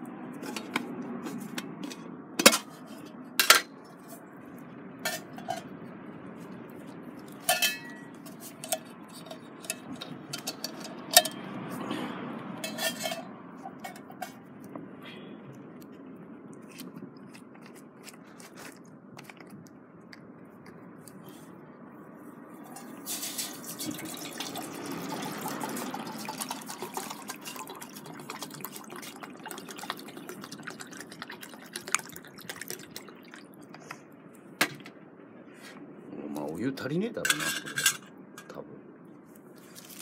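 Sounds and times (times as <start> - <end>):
water poured into metal cup: 22.7 - 33.6.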